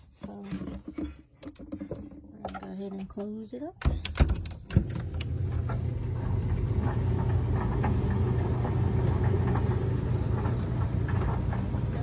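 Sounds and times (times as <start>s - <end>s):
dryer humming: 3.0s - 12.0s.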